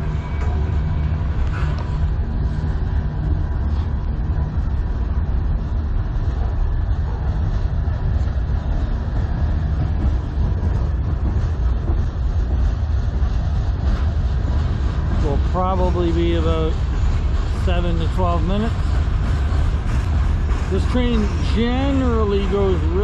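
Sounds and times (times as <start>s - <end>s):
freight train wheels rumbling: 0.0s - 23.0s.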